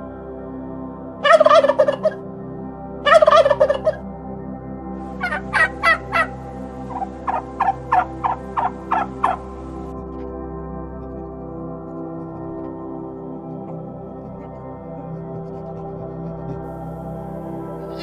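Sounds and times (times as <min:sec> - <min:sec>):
ambient music: 0:00.0 - 0:18.0
large bird calling: 0:17.8 - 0:18.0.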